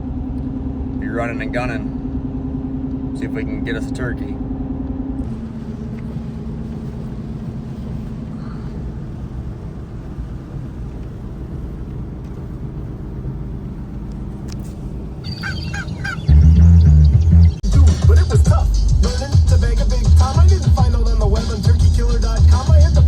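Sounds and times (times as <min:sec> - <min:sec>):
engine rumble inside cab: 0:00.0 - 0:23.0
road noise: 0:00.0 - 0:23.0.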